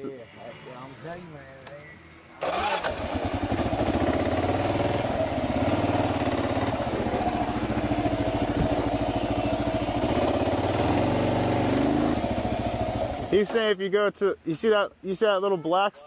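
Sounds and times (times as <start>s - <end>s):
motorcycle engine idling: 2.4s - 13.4s.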